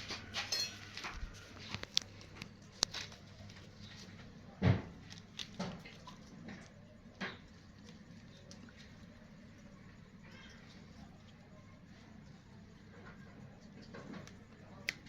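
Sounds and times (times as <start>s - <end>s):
kittens tapping and scuffling: 0.0s - 11.4s.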